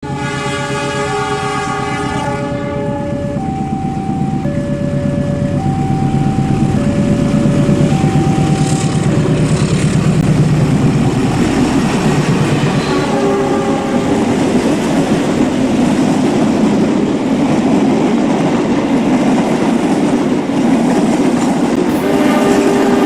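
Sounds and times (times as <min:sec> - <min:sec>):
model train rumbling on track: 0:00.0 - 0:23.0
two-tone electronic warning signal: 0:01.1 - 0:10.0, 0:12.6 - 0:14.7, 0:21.8 - 0:23.0.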